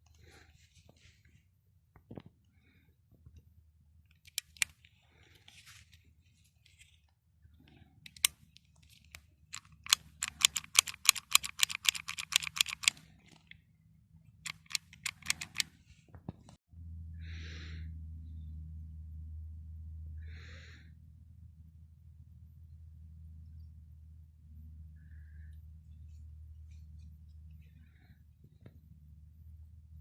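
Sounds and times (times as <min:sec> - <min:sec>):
pistol metal clicks: 0:04.2 - 0:04.8, 0:08.1 - 0:08.4, 0:09.5 - 0:13.0, 0:14.5 - 0:15.7.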